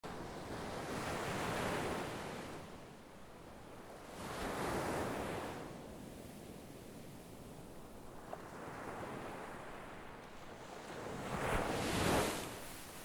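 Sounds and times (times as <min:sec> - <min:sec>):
sea waves washing ashore: 0:07.8 - 0:13.0.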